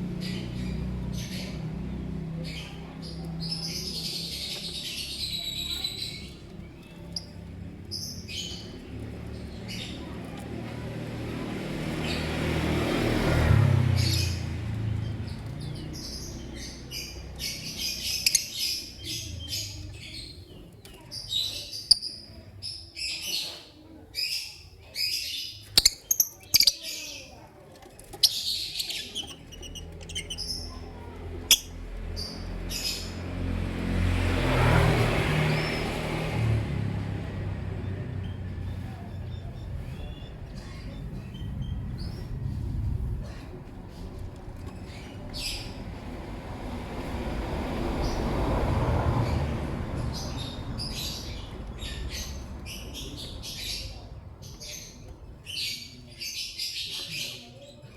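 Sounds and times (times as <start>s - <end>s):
lovebirds chirping: 0.0s - 10.8s, 11.9s - 33.6s, 37.0s - 46.8s, 49.2s - 57.9s
low rumble: 36.4s - 55.2s.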